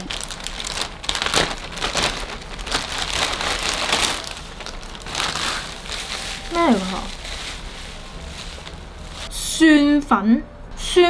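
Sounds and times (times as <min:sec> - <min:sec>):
packaging rustling and crinkling: 0:00.0 - 0:09.3.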